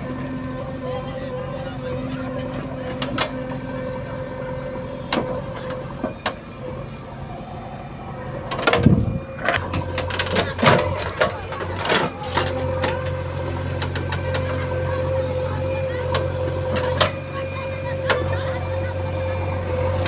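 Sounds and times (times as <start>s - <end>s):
diesel engine running: 0.0s - 20.0s
metal clanks and knocks: 8.5s - 14.6s.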